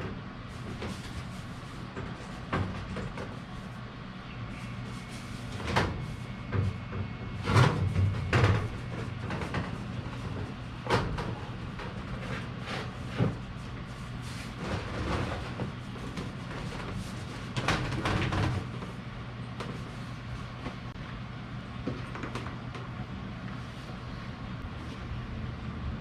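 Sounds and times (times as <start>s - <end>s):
steady low hum: 0.0s - 26.0s
knocks and clunks of parts: 1.9s - 3.4s, 5.5s - 13.5s, 14.6s - 19.0s.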